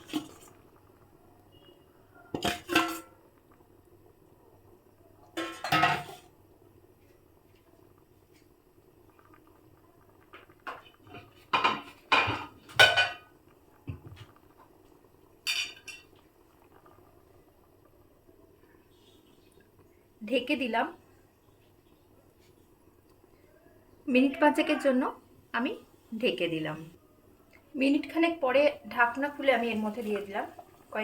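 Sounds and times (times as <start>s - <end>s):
metal utensils clinking on a pot: 2.3s - 3.2s, 5.4s - 6.3s, 10.7s - 13.3s, 15.5s - 16.2s.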